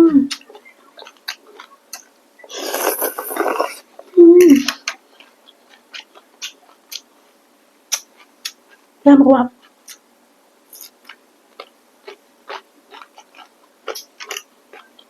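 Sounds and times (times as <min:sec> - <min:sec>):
wet mouth clicks and smacks: 0:00.3 - 0:02.1, 0:04.7 - 0:07.1, 0:07.9 - 0:08.8, 0:10.7 - 0:11.7, 0:12.5 - 0:15.0
slurping noodles: 0:02.5 - 0:03.9
person humming mm: 0:02.5 - 0:04.8.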